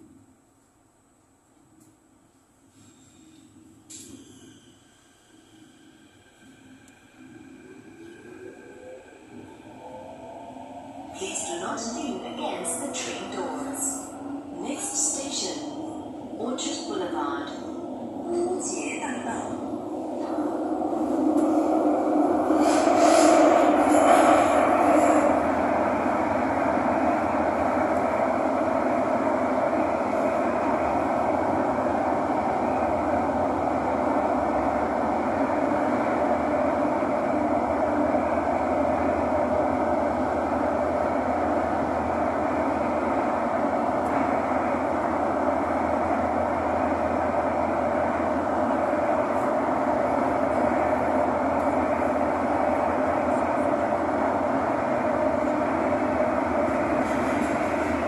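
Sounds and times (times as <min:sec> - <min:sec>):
train wheels and motors rumbling: 0:18.2 - 0:58.0.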